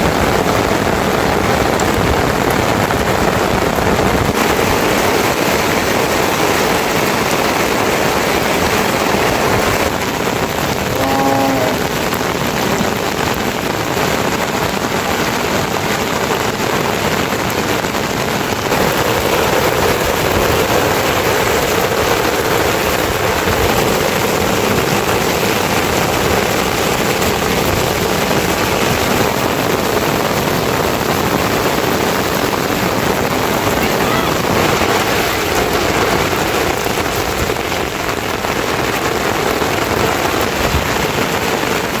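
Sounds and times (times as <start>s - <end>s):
heavy rain hiss: 0.0s - 42.0s.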